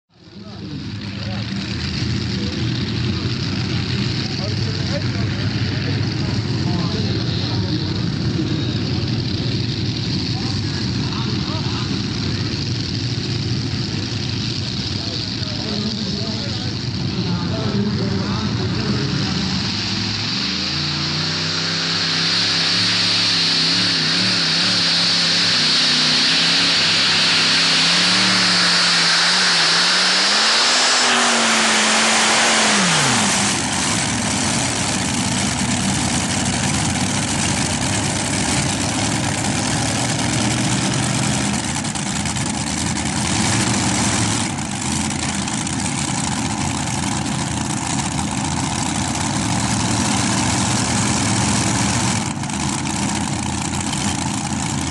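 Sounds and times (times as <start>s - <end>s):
tractor engines running hard: 0.1s - 54.9s
loud high hiss: 19.9s - 33.8s.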